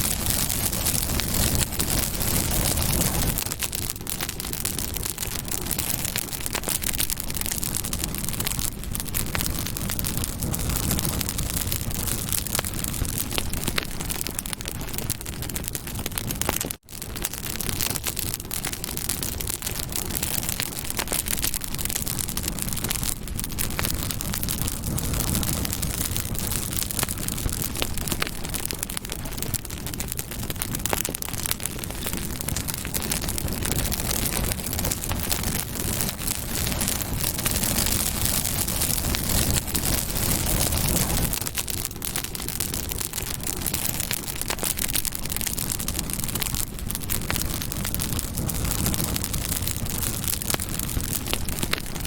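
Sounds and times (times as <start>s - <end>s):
campfire crackling and popping: 0.0s - 52.0s
flames rushing: 0.0s - 52.0s.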